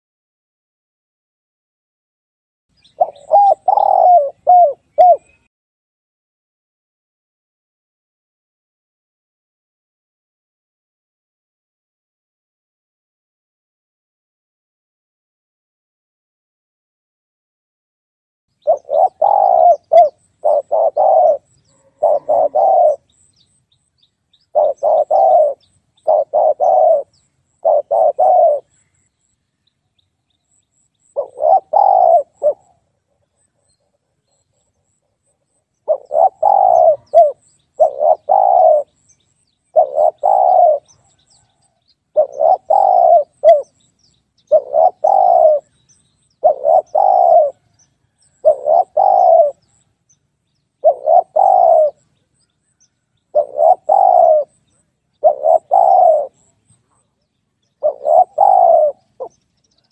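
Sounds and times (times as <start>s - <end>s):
dove cooing: 2.8s - 5.5s, 18.6s - 23.5s, 24.4s - 28.8s, 31.1s - 34.2s, 35.8s - 39.0s, 39.7s - 43.8s, 44.4s - 45.8s, 46.4s - 49.8s, 50.8s - 52.1s, 53.3s - 57.0s, 57.8s - 59.9s.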